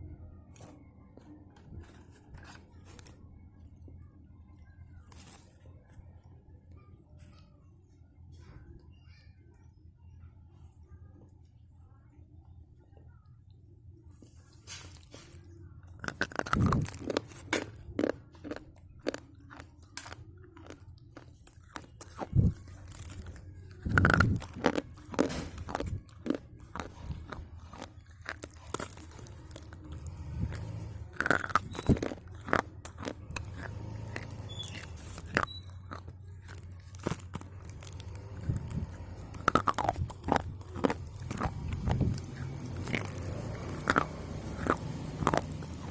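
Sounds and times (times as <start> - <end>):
slate pencil being chewed: 14.4 - 45.9.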